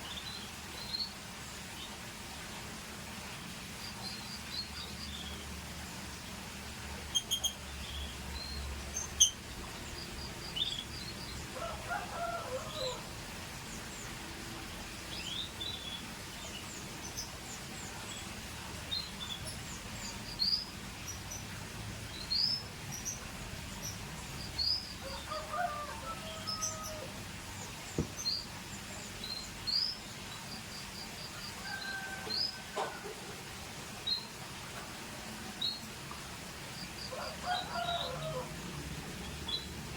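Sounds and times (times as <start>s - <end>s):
canary chirping: 7.1s - 8.2s.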